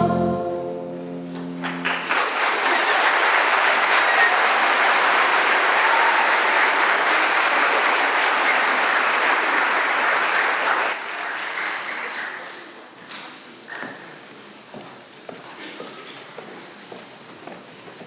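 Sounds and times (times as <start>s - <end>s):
audience applauding: 1.6s - 12.8s.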